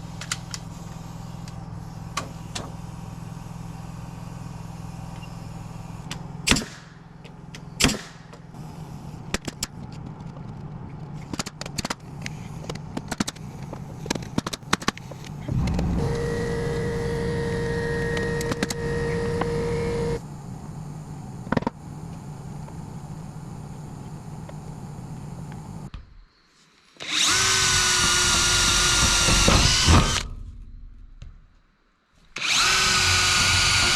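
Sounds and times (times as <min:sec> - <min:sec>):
steady engine hum: 0:00.0 - 0:25.9
motor whining: 0:14.6 - 0:25.9, 0:32.4 - 0:33.9.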